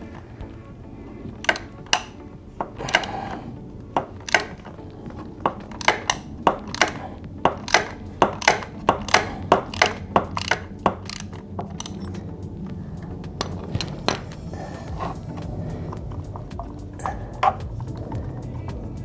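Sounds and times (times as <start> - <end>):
wrench clicking: 1.4 - 2.2, 2.8 - 3.3, 4.2 - 4.7, 5.7 - 12.4.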